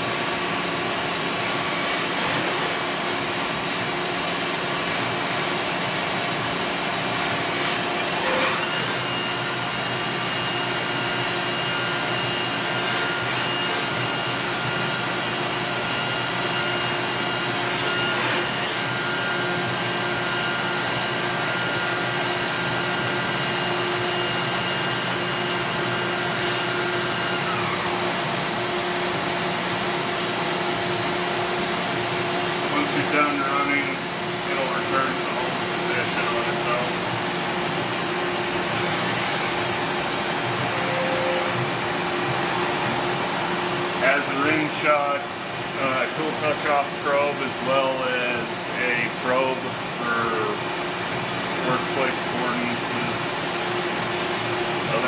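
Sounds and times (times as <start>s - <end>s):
machine mechanical hum: 0.0s - 55.0s
high whining tones: 32.4s - 46.2s.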